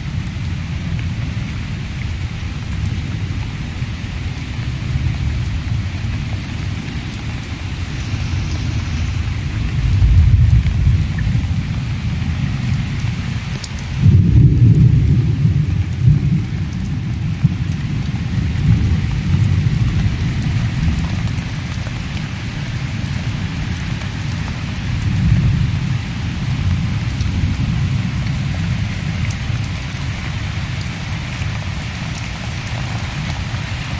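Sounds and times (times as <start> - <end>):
steady rain falling: 0.0 - 33.9
low rumble: 5.6 - 11.6.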